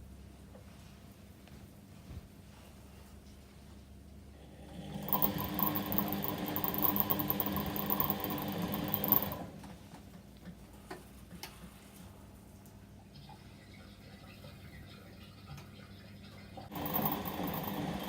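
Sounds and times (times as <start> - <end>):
washing machine motor hum: 4.2 - 18.0.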